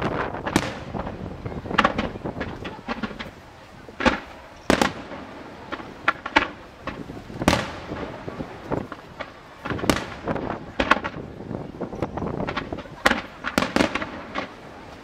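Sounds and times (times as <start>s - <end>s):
small firework cracks: 0.0s - 3.4s, 4.0s - 11.4s, 12.4s - 15.0s
firework shells bursting: 4.0s - 11.3s, 12.4s - 14.7s.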